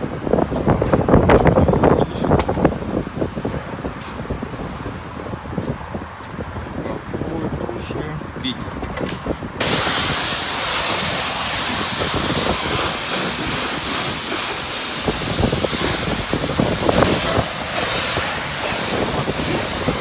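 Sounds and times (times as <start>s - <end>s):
high-pressure water spray on car: 9.6s - 20.0s.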